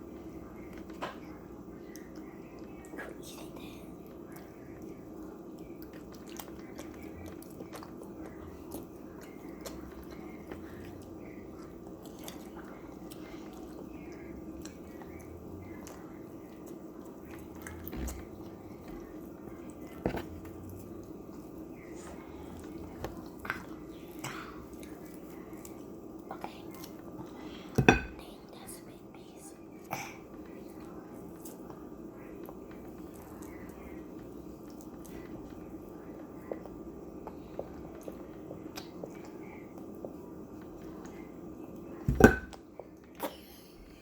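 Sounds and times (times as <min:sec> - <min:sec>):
people chewing food: 0:00.0 - 0:44.0
steady low hum: 0:00.0 - 0:44.0.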